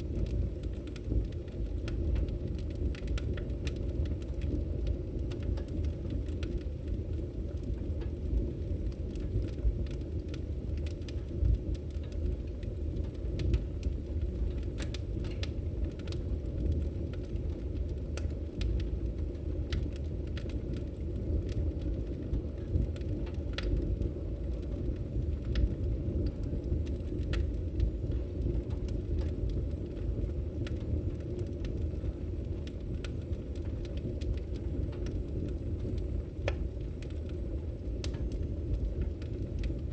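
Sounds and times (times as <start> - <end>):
fire popping and snapping: 0.0 - 39.9
low rumble of flames: 0.0 - 39.9.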